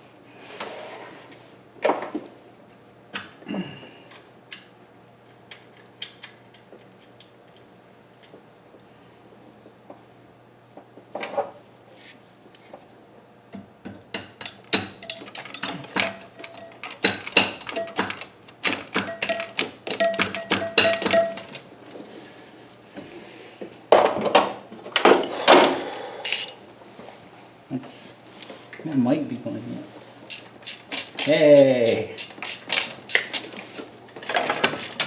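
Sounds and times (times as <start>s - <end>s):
hand tools clicking on metal: 14.1s - 21.6s, 26.2s - 26.6s, 30.2s - 35.0s.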